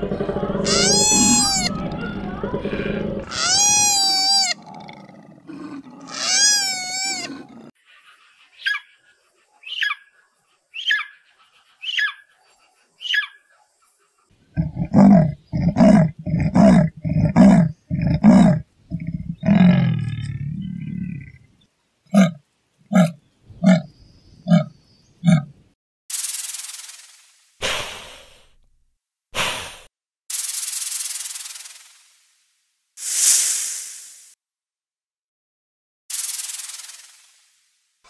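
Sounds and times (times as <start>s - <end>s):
deep loud animal calls: 0.0s - 7.7s, 14.5s - 21.5s
long rising and falling calls: 0.6s - 1.8s.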